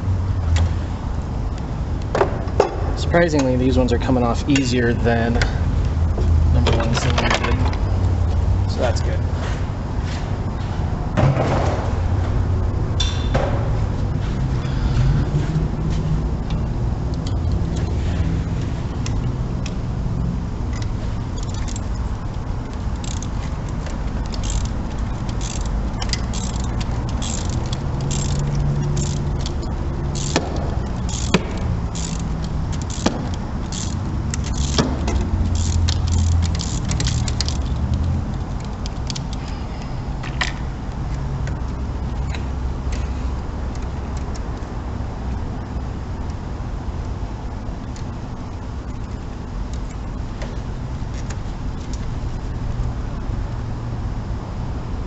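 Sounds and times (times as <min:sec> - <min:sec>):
steady low rumble: 0:00.0 - 0:55.0
ratchet and socket clicking: 0:20.7 - 0:39.6, 0:43.7 - 0:44.7.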